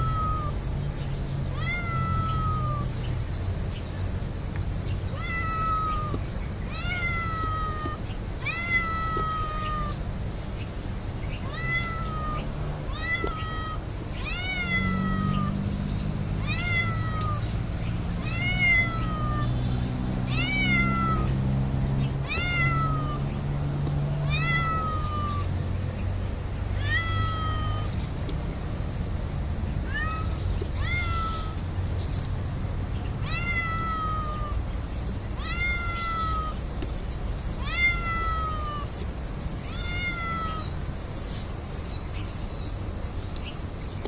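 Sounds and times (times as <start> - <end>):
cat meowing: 0.0 - 0.6, 1.5 - 3.0, 5.1 - 10.0, 11.4 - 15.6, 16.4 - 17.5, 18.2 - 19.6, 20.3 - 21.4, 22.2 - 23.3, 24.2 - 25.5, 26.8 - 27.9, 29.8 - 31.6, 33.2 - 34.6, 35.4 - 36.6, 37.6 - 39.0, 39.6 - 40.8.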